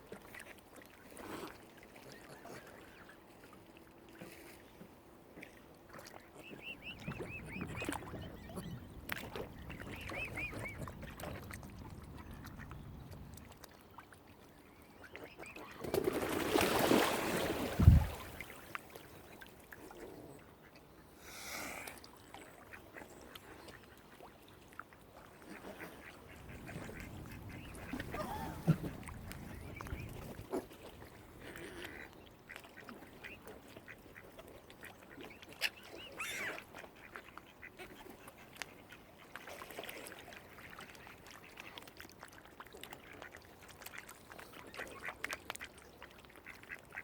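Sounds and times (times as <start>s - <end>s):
waterfowl calling: 25.8s - 30.3s.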